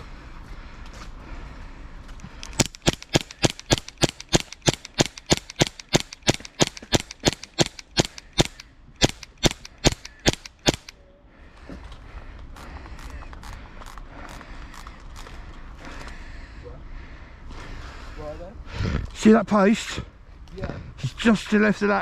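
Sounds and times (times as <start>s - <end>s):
airsoft pistol shots: 2.5s - 10.9s.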